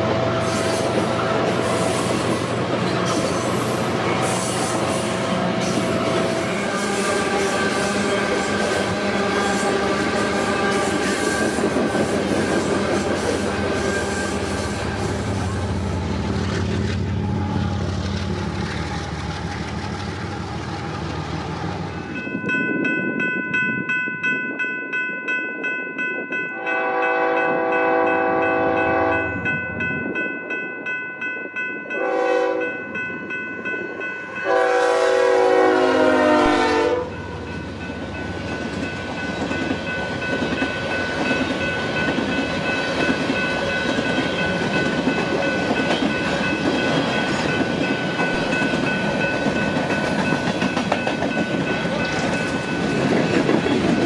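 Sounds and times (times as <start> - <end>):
freight cars rolling on rails: 0.0 - 23.2, 37.2 - 54.0
steady high ringing: 21.9 - 35.4, 37.0 - 54.0
locomotive air horn blasts: 26.6 - 29.4, 32.0 - 32.7, 34.4 - 37.2.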